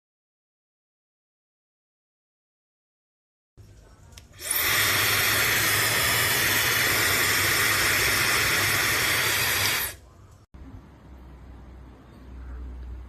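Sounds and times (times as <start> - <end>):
hair dryer blowing: 4.4 - 10.0.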